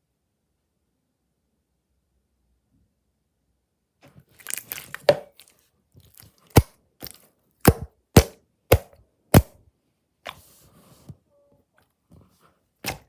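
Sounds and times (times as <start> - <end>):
slime crinkly crackling: 4.2 - 7.2
slime popping clicks: 4.4 - 5.4.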